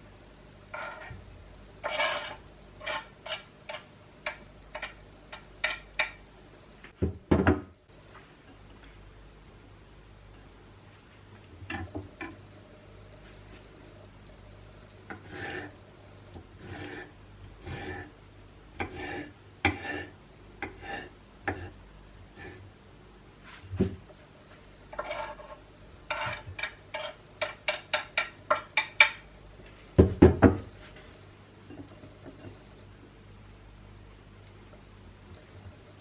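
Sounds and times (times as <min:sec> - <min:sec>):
utensils scraping: 0:00.7 - 0:01.2, 0:01.8 - 0:06.2, 0:15.1 - 0:15.8, 0:16.6 - 0:18.1, 0:18.8 - 0:21.8, 0:24.9 - 0:29.1.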